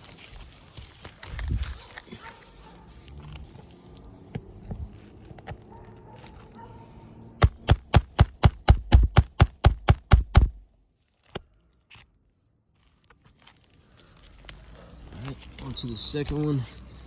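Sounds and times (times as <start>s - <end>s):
hammer striking a roof: 7.4s - 10.6s.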